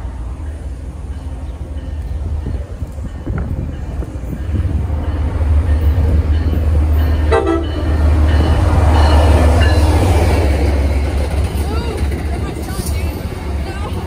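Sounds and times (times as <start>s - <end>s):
diesel locomotive engine rumble: 0.0s - 14.0s
train wheel and rail noise: 0.0s - 14.0s
train horn blast: 7.2s - 8.0s.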